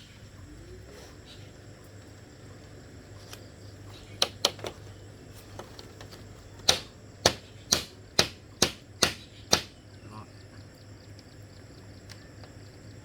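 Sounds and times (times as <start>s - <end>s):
tool striking bamboo: 4.2s - 4.8s, 5.6s - 9.8s.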